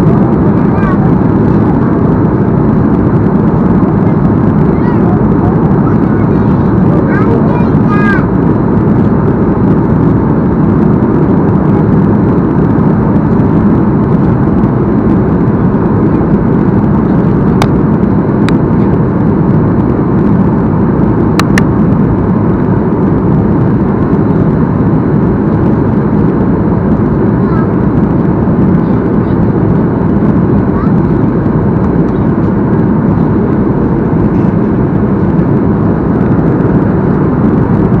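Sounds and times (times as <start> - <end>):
airplane cabin noise: 0.0 - 38.0
jet engines: 0.0 - 38.0
rush of airflow: 0.0 - 38.0.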